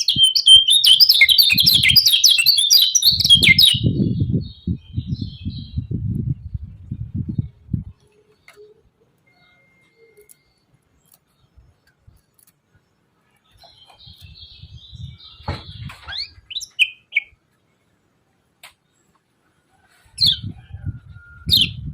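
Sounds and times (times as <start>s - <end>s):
bird chirping and trilling: 0.0s - 5.9s, 13.5s - 17.4s.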